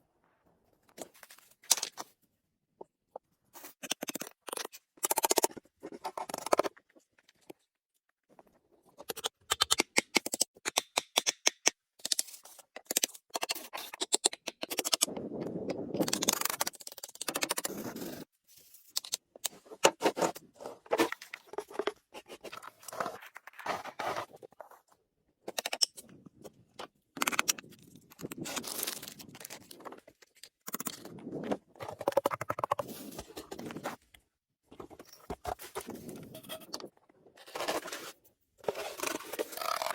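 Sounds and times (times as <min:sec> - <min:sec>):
shovel scraping and crunching snow: 0:22.2 - 0:24.4, 0:37.4 - 0:39.9.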